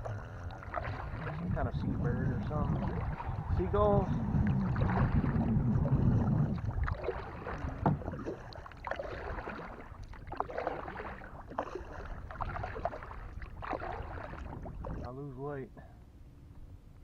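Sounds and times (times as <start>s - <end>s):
low rumble: 0.0s - 8.6s
paddle splashing in water: 0.0s - 15.1s.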